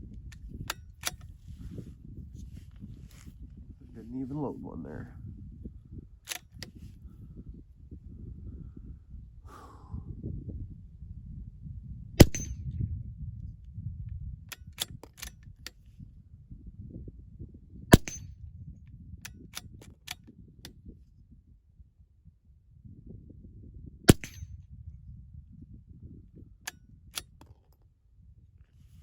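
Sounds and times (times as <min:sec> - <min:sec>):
rifle bolt clicking: 0:00.6 - 0:01.3, 0:06.3 - 0:06.8, 0:14.5 - 0:15.8, 0:18.0 - 0:18.2, 0:24.1 - 0:24.4, 0:26.7 - 0:27.7
rifle shot crack: 0:12.2 - 0:12.6, 0:17.9 - 0:18.3, 0:24.1 - 0:24.5.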